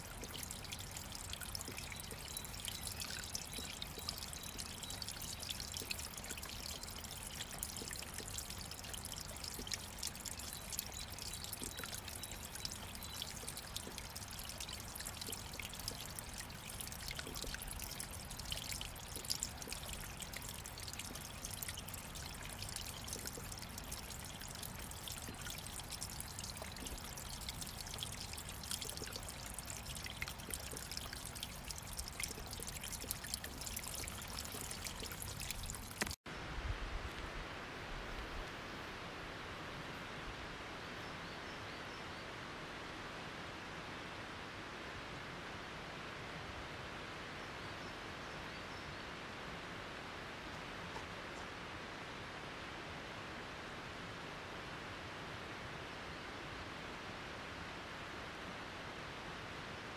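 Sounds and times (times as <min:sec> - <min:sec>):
running water: 0:00.0 - 0:36.2.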